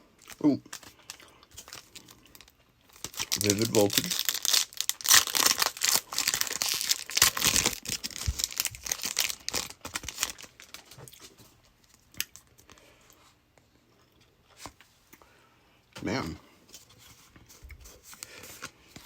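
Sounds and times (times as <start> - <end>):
foil wrapper tearing and crinkling: 0.2 - 11.0.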